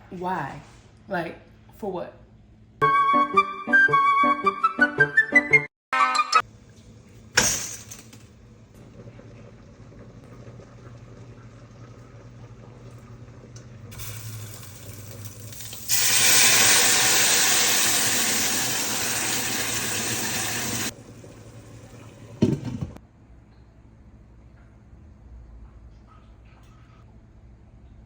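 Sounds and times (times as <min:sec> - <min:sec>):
faucet water running: 0:06.5 - 0:23.0
water gushing: 0:08.8 - 0:23.0.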